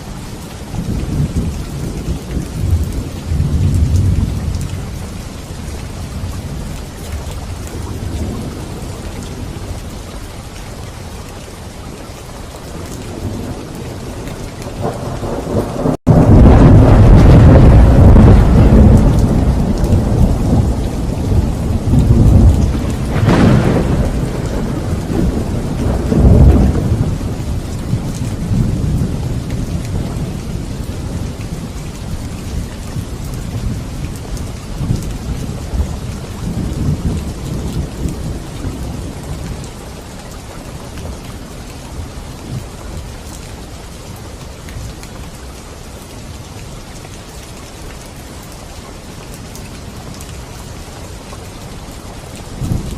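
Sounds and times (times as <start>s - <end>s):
rain falling: 0.0s - 52.9s
rolling thunder: 0.6s - 6.8s, 12.7s - 39.9s, 52.5s - 52.9s
thunder cracks: 13.2s - 31.4s.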